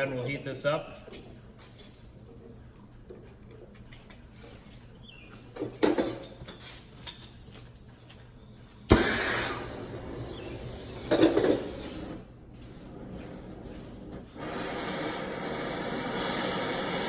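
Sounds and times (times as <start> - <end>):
torch hissing: 8.6 - 12.3, 13.3 - 17.0.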